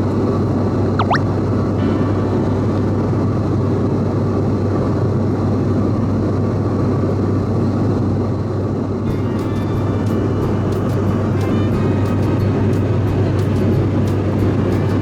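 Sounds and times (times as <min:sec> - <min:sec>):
airliner cabin drone: 0:00.0 - 0:15.0
low propeller hum: 0:08.9 - 0:15.0.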